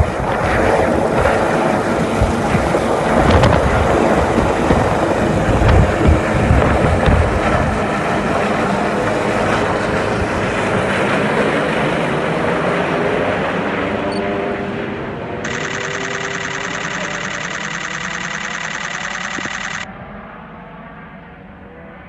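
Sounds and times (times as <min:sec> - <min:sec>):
wind on microphone: 0:00.0 - 0:08.0
helicopter rotor and turbine: 0:00.0 - 0:20.7.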